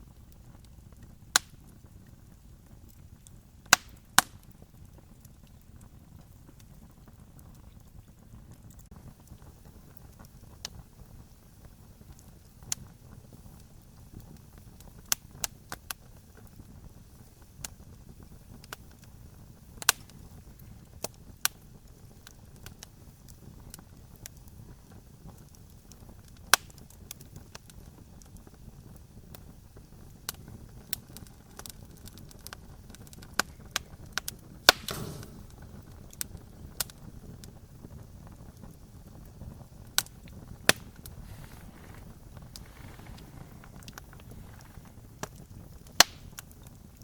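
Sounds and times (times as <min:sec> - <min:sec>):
campfire crackling and popping: 0:00.0 - 0:47.0
fire hiss: 0:08.4 - 0:47.0
low steady rumble: 0:32.8 - 0:46.1.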